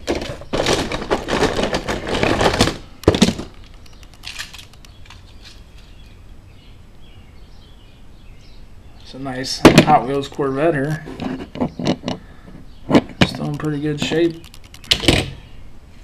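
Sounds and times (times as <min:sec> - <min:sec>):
toy cars clattering: 0:00.0 - 0:05.6
sharp click: 0:12.9 - 0:15.4.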